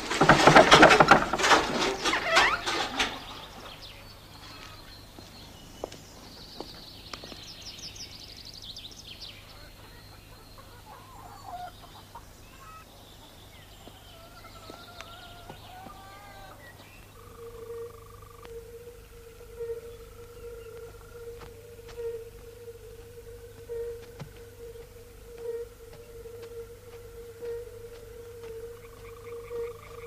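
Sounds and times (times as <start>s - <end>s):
birds chirping: 0.0s - 30.0s
birds wavering calls: 0.9s - 30.0s
steady low hum: 14.4s - 30.0s.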